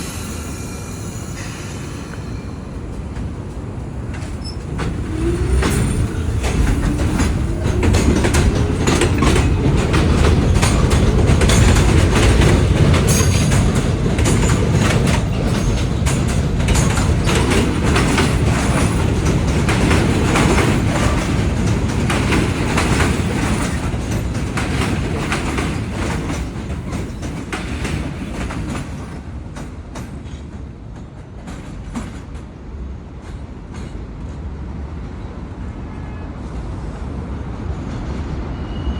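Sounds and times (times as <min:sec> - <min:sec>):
train rumble: 0:00.0 - 0:38.9
train wheels clacking over joints: 0:01.6 - 0:32.6.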